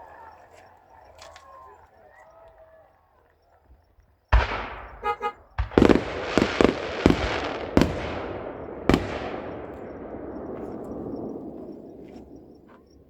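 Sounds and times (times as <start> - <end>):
fireworks bangs: 4.3 - 13.0.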